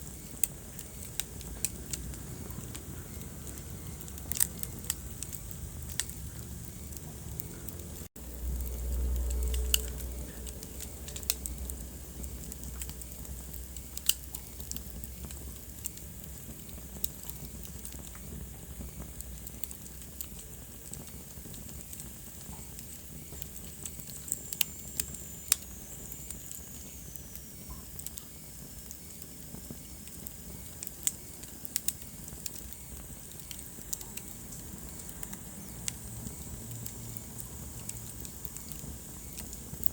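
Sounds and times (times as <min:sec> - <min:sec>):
wood fire crackling: 0:00.0 - 0:39.9
low rumble: 0:01.3 - 0:14.0.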